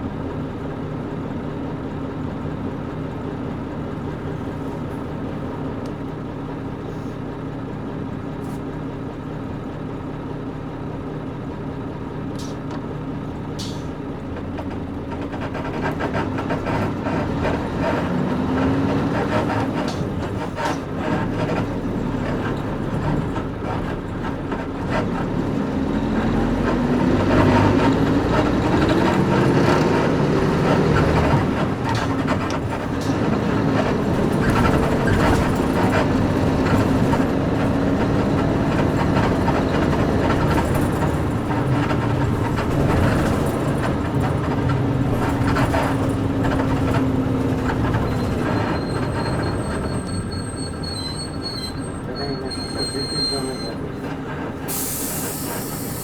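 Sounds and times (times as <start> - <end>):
bus diesel engine running: 0.0 - 56.0
suspension creaks and rattles: 12.4 - 56.0
high thin brake squeal: 47.9 - 54.0, 54.6 - 56.0.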